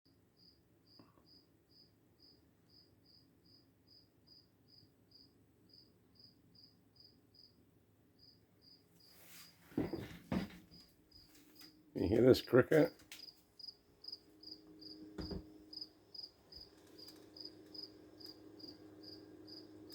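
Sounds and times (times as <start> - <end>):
cricket chirping: 0.4 - 7.6, 8.2 - 9.2, 12.8 - 19.9.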